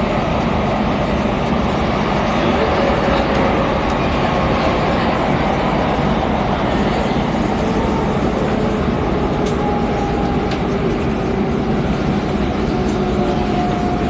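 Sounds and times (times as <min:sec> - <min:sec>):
rumble of wheels on rail: 0:00.0 - 0:14.0.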